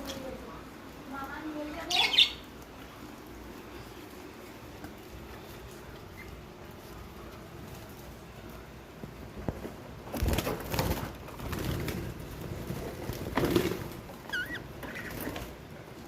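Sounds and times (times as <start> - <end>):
high bird chirping: 1.8 - 2.5, 14.3 - 15.3
birds scuffling and knocking: 4.1 - 16.0.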